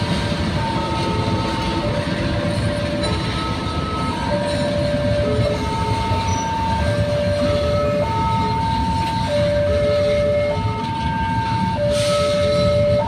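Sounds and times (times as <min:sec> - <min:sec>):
freight wagons rumbling on rails: 0:00.0 - 0:13.0
two-tone crossing alarm: 0:00.0 - 0:13.0.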